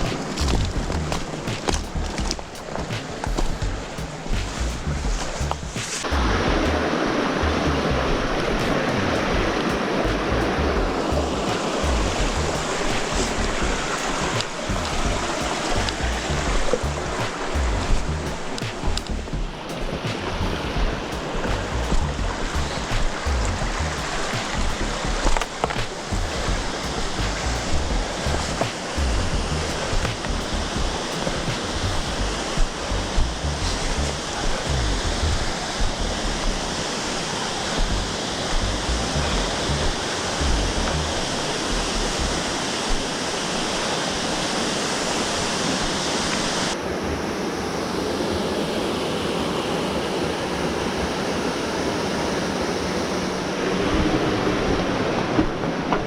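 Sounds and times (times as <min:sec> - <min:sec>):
low thuds: 0:00.0 - 0:36.8, 0:37.7 - 0:42.4
falling water rushing: 0:00.0 - 0:56.0.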